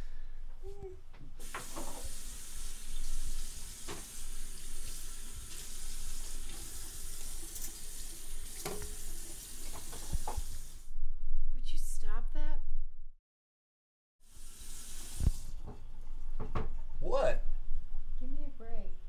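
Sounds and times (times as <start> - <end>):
tap water running into sink: 1.4 - 10.8, 14.3 - 16.8.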